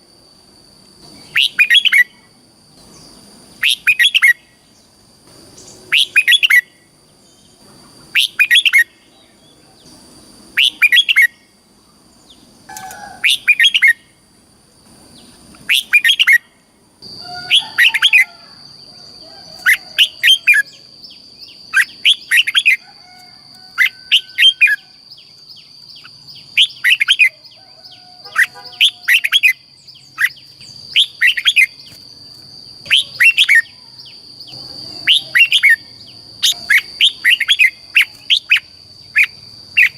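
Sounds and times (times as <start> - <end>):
bird warbling song: 1.0 - 2.2, 5.6 - 10.0, 10.6 - 11.4, 12.2 - 14.0, 19.2 - 22.8, 23.8 - 39.9.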